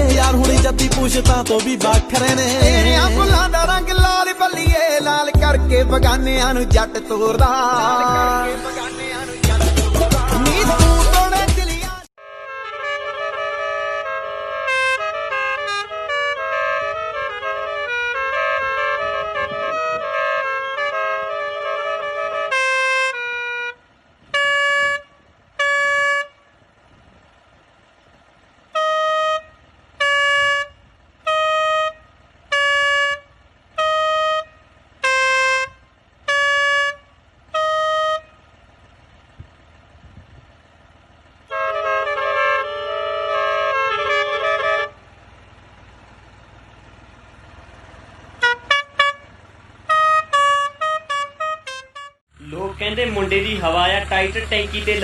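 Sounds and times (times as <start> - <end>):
vehicle horn blasts: 12.2 - 26.6, 28.7 - 38.6, 41.5 - 45.2, 48.2 - 52.3.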